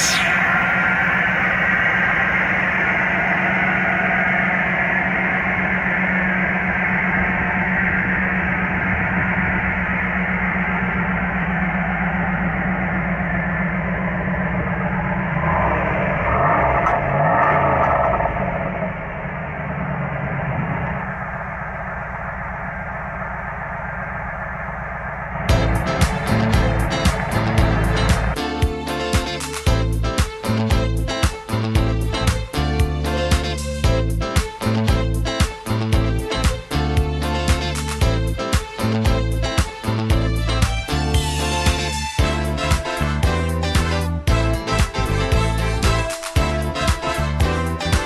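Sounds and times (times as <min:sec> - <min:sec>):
car engine running: 0:00.0 - 0:28.4
music: 0:25.5 - 0:48.0.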